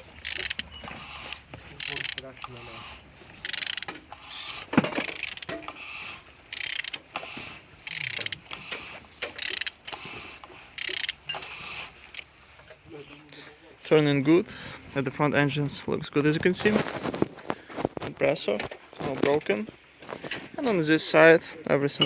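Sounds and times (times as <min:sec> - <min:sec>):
ratchet wrench clicking: 0:00.2 - 0:00.7, 0:01.3 - 0:02.6, 0:03.4 - 0:04.3, 0:05.0 - 0:05.6, 0:06.5 - 0:07.1, 0:07.8 - 0:08.5, 0:09.3 - 0:10.0, 0:10.8 - 0:11.2.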